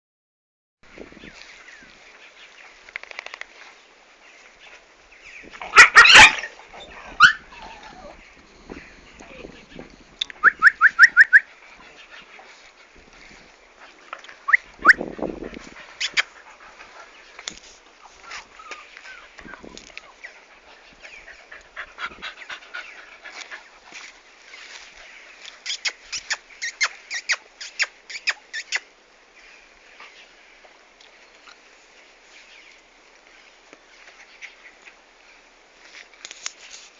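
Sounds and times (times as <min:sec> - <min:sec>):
dog high-pitched yelps: 0:05.6 - 0:08.2
dogs whining and crying: 0:05.6 - 0:08.3.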